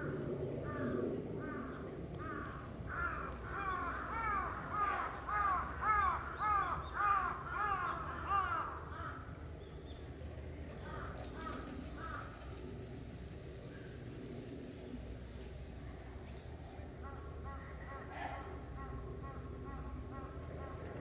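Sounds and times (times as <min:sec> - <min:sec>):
crow cawing: 0:00.6 - 0:09.3, 0:10.9 - 0:12.3.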